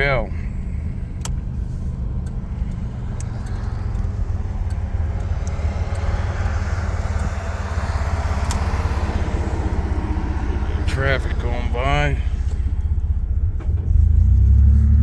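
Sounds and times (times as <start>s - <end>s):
car engine low rumble: 0.0s - 15.0s
road noise: 0.0s - 15.0s.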